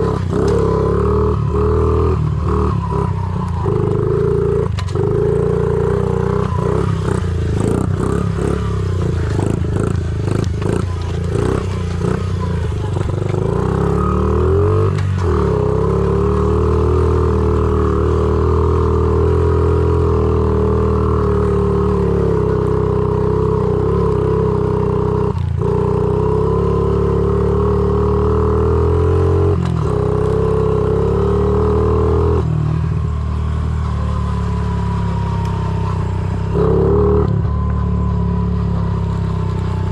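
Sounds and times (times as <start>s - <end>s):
motorbike engine running: 0.0s - 17.7s.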